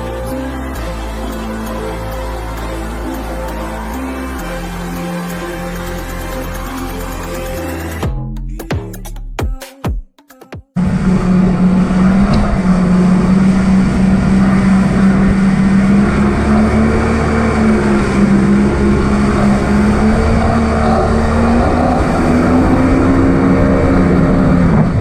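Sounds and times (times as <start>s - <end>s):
jet ski engine running: 0.0s - 8.0s, 10.8s - 25.0s
rushing water and wind: 10.9s - 25.0s.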